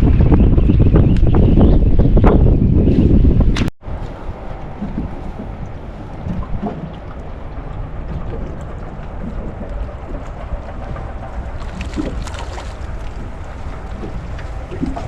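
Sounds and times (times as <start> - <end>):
wind rumbling on microphone: 0.0 - 15.0
outboard motor running: 3.9 - 15.0.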